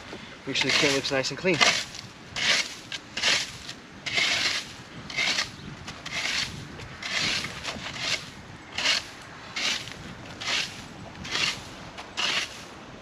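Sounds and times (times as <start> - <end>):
branch broom sweeping leaves: 0.0 - 5.4, 6.1 - 12.8.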